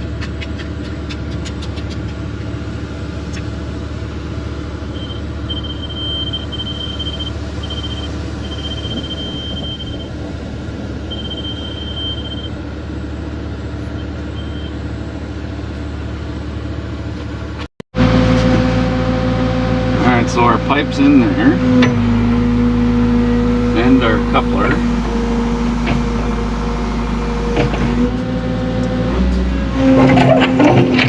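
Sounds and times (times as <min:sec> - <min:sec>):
excavator diesel engine running: 0:00.0 - 0:31.0
high steady beep: 0:05.0 - 0:10.1, 0:11.1 - 0:12.5.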